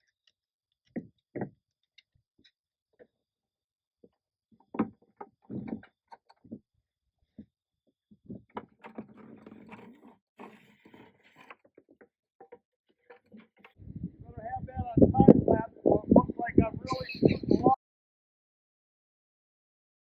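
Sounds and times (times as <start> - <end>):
knocks and clunks: 4.6 - 6.6.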